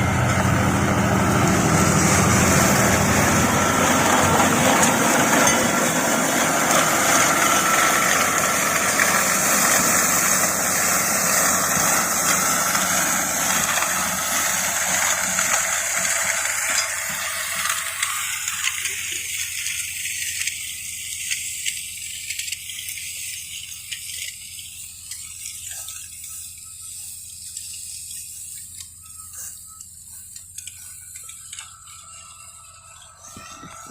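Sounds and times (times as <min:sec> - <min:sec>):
tractor and mulcher running: 0:00.0 - 0:33.9.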